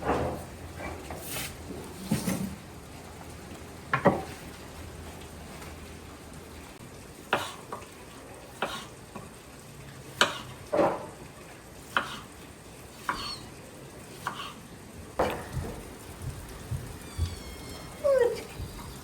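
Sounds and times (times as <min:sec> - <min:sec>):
food sizzling in a pan: 0:06.7 - 0:19.0.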